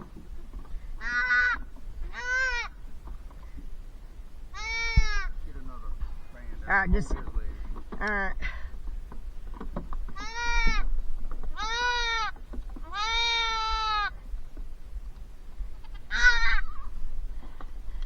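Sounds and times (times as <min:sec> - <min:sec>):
goat kid bleating: 0:01.0 - 0:02.8, 0:04.5 - 0:05.4, 0:10.2 - 0:10.9, 0:11.5 - 0:14.2, 0:15.8 - 0:16.9.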